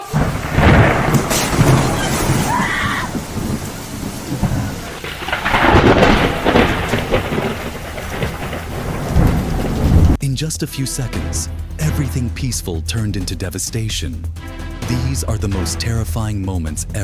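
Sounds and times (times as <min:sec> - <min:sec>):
heavy rain: 0:00.0 - 0:10.2
thunder rumbling: 0:00.0 - 0:17.0.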